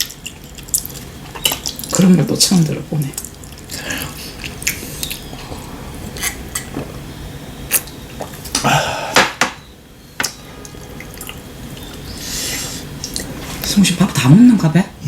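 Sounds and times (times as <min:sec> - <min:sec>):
wet mouth sounds of eating: 0:00.0 - 0:02.2, 0:03.1 - 0:07.1, 0:07.7 - 0:08.8, 0:11.0 - 0:13.7.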